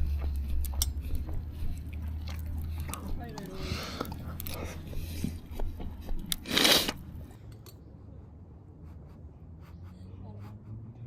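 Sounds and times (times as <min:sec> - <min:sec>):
breathy slurp or blow: 0:06.3 - 0:07.0.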